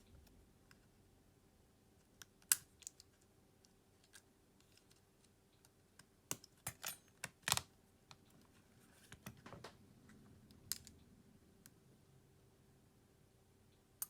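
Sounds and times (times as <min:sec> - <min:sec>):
small tools clicking and tapping: 0:05.6 - 0:08.2.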